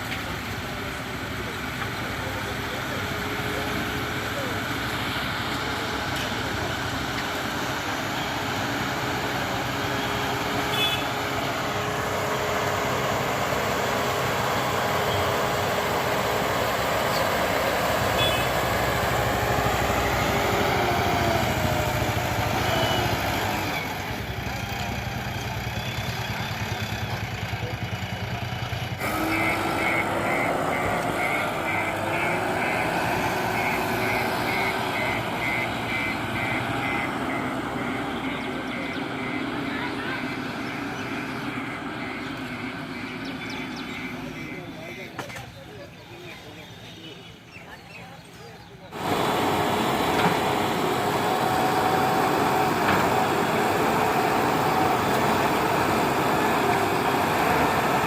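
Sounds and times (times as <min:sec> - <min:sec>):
diesel engine under load: 0:00.0 - 0:58.0
reversing alarm beeping: 0:29.1 - 0:44.9.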